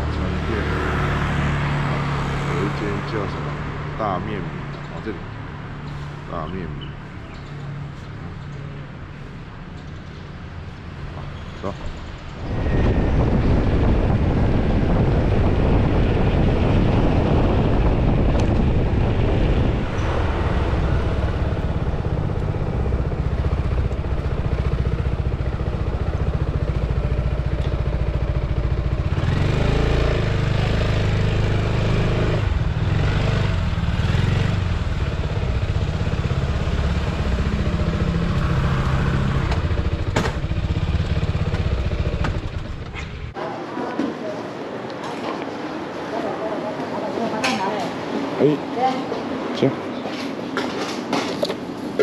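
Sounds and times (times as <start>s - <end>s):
road noise: 0.0s - 52.0s
motorcycle engine: 12.3s - 43.4s.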